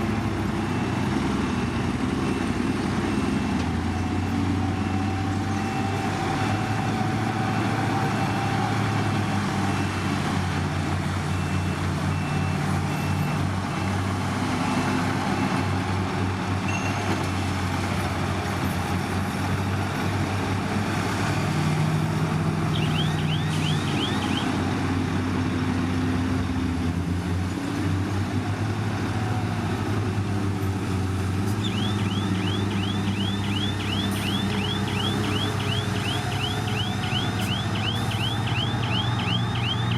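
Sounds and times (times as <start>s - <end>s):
diesel earthmoving machinery running: 0.0s - 39.9s
chirping warning alarm: 22.7s - 24.5s, 31.6s - 39.9s.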